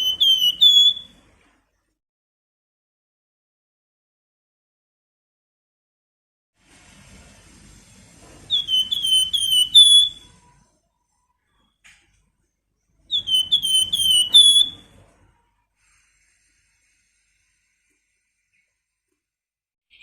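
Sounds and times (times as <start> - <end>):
songbird whistled calls: 0.0 - 1.2, 8.5 - 10.4, 13.1 - 14.9.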